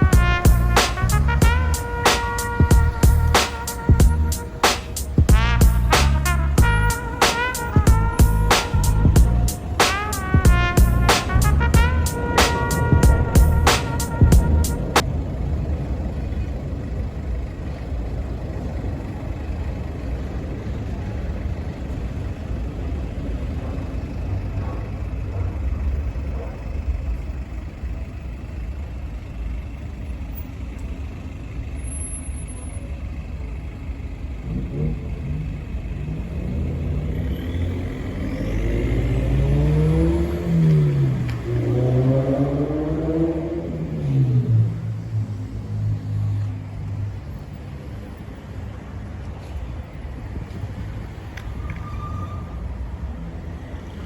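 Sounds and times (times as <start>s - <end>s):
diesel locomotive engine rumbling: 0.0s - 41.9s.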